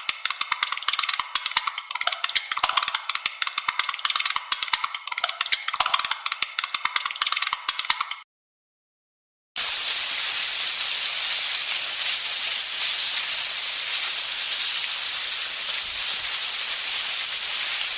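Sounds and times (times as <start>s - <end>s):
steady hiss: 9.6s - 17.9s.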